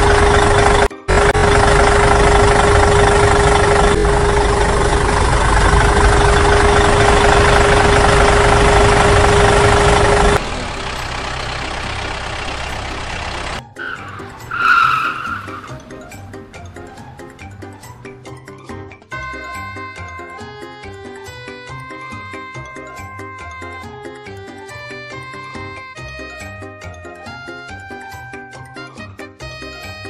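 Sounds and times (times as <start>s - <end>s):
music: 13.6s - 30.0s.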